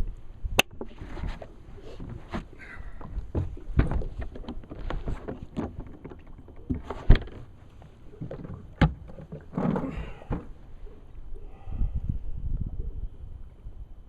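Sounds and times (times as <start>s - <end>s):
handling knocks and thumps: 0.6s - 10.6s.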